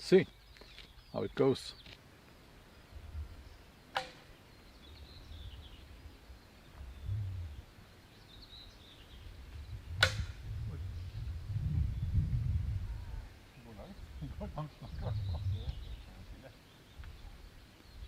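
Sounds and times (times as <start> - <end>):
bow string snap: 3.9 - 4.3, 10.0 - 10.4
low rumble: 6.8 - 7.7, 9.4 - 13.3.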